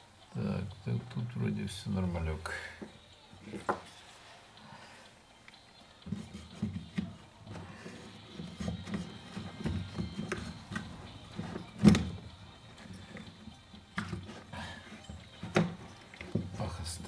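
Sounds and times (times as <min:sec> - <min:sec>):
hollow knocks of tools and parts: 0:02.8 - 0:03.9, 0:06.0 - 0:16.6.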